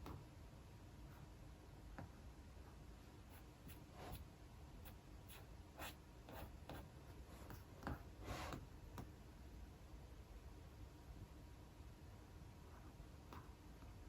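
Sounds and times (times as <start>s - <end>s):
taps and scratches at a desk: 6.3s - 9.1s.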